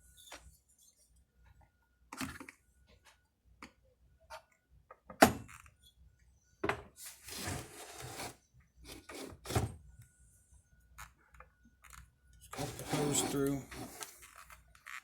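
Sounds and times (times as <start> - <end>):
hose rubbing and scraping: 12.5 - 14.4.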